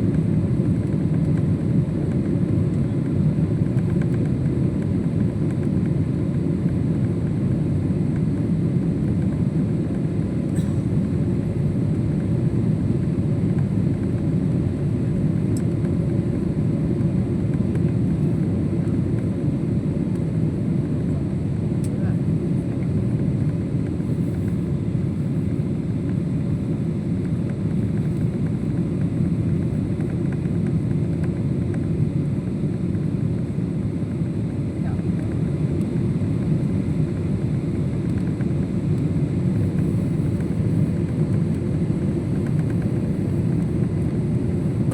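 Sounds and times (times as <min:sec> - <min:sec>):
airliner cabin engine roar: 0:00.0 - 0:44.9.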